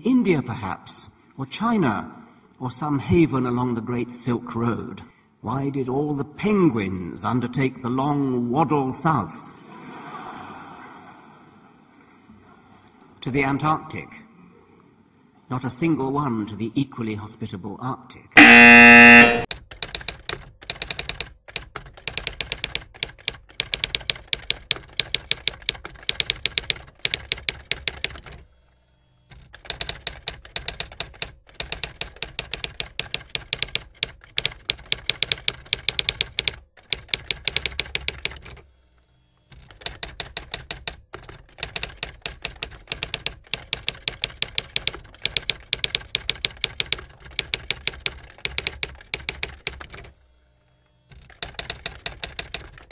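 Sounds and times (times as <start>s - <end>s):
rapid keyboard typing: 18.4s - 28.5s, 29.3s - 38.6s, 39.5s - 50.2s, 51.1s - 52.9s.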